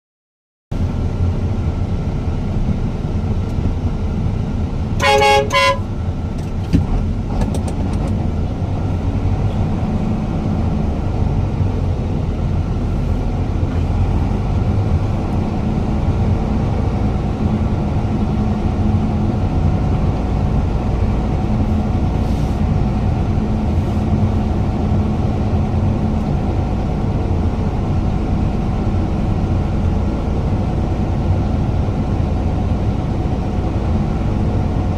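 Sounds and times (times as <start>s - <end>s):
truck engine rumbling: 0.7s - 34.9s
truck horn toots: 5.0s - 6.0s.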